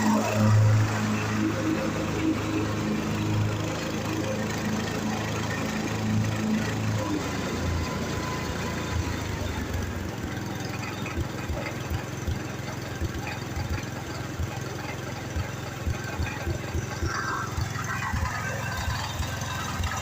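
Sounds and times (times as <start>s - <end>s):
old tractor engine thumping: 8.8s - 20.0s.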